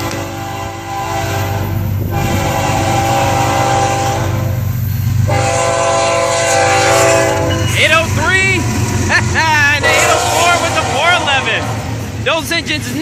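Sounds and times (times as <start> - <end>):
locomotive air horn blasts: 0.0 - 4.6, 5.2 - 7.9, 9.8 - 12.0
rumble of passing train: 0.0 - 13.0.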